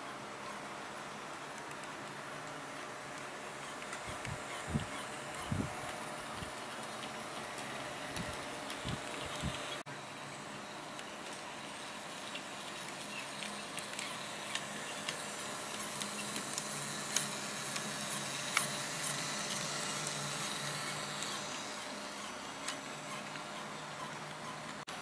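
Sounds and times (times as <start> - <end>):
model train motor hum: 12.7 - 24.8.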